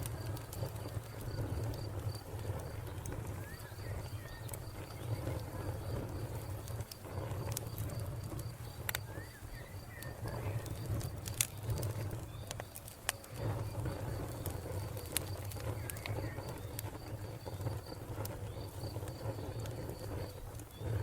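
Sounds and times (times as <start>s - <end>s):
wood fire crackling: 0.0s - 21.0s
faint bird chirps: 3.3s - 5.4s, 8.6s - 10.8s.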